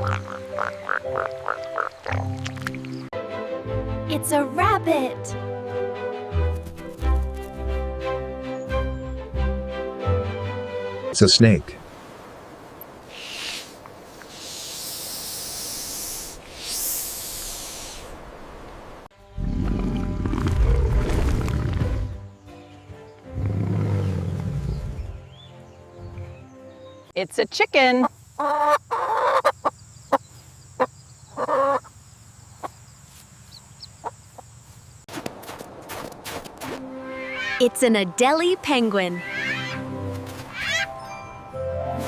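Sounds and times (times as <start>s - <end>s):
snake hissing: 13.1s - 18.2s
chicken clucking: 28.4s - 29.7s, 31.4s - 31.9s.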